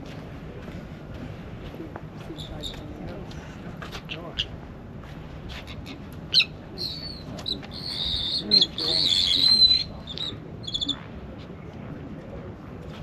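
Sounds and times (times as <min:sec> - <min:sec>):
faint voices: 0:00.0 - 0:13.0
bird chattering call: 0:05.7 - 0:11.0.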